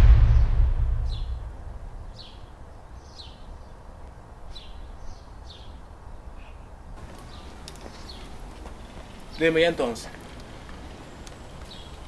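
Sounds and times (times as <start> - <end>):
low outdoor rumble: 0.0 - 2.5
bird chirping: 0.0 - 3.8.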